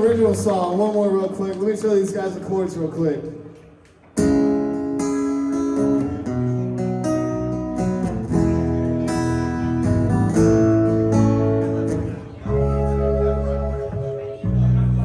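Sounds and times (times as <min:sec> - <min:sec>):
guitar strumming chords: 0:04.2 - 0:15.0.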